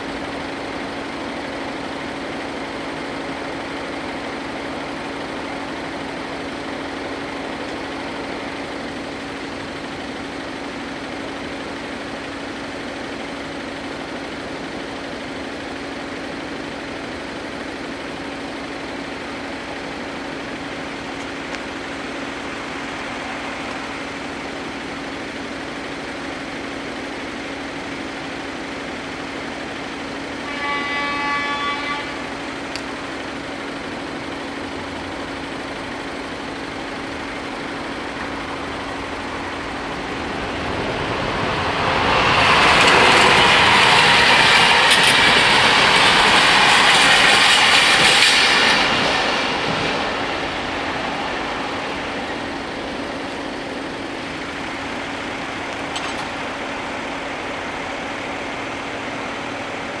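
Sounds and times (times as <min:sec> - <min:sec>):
train rumbling and clattering: 0:00.0 - 1:00.0
train horn: 0:30.2 - 0:32.8, 0:41.6 - 0:52.5
steady low tone: 0:49.4 - 0:58.9.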